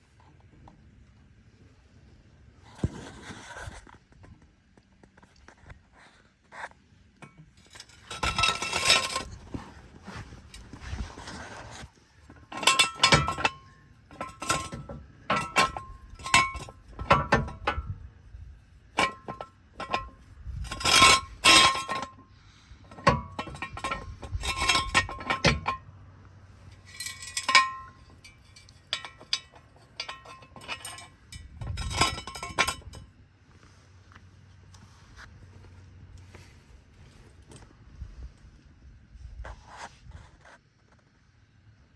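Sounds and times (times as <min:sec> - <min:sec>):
metal tools clanking: 0:07.6 - 0:18.0, 0:19.0 - 0:26.0, 0:26.6 - 0:33.1.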